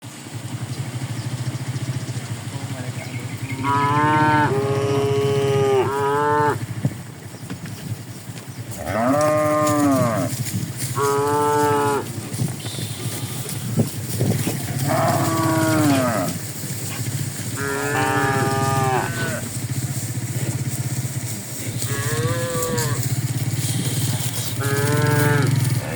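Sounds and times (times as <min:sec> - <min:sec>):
cattle mooing: 0:03.5 - 0:06.7, 0:08.7 - 0:25.9.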